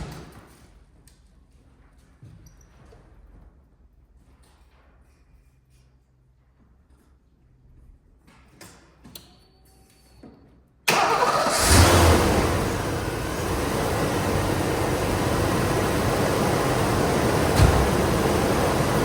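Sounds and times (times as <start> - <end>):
car engine starting and idling: 10.9 - 19.0.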